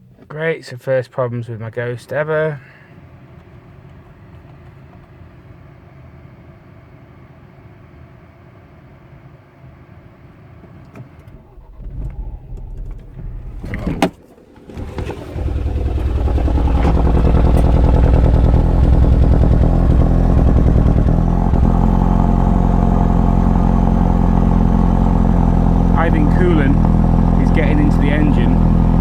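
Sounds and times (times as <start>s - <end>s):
car engine starting and idling: 10.2s - 29.0s.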